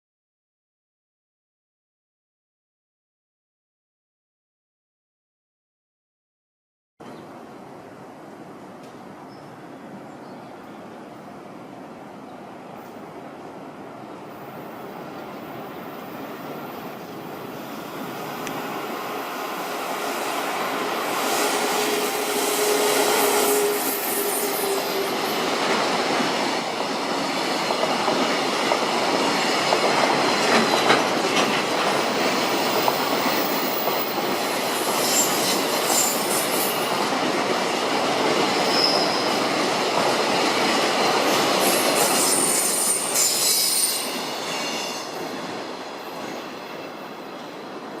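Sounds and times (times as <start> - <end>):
train wheels rumbling on rail: 14.5 - 48.0
high wheel squeals: 38.6 - 39.4, 41.6 - 45.4.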